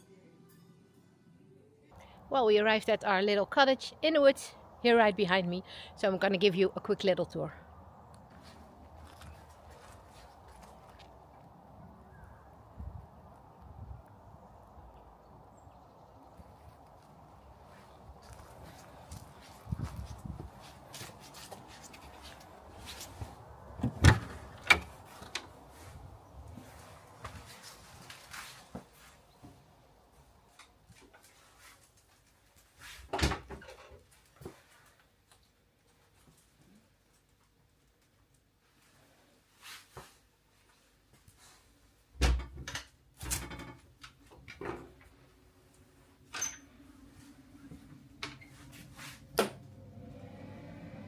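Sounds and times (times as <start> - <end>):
footsteps on wood: 17.6 - 23.5.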